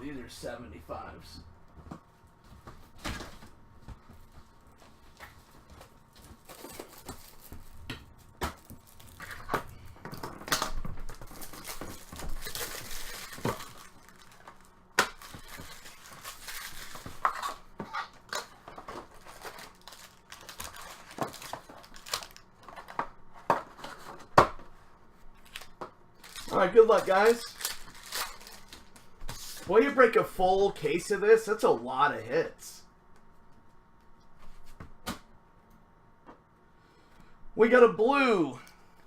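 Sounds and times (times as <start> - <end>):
card packs tearing and crinkling: 5.2 - 7.8, 8.6 - 17.6, 18.3 - 23.0, 25.4 - 29.8.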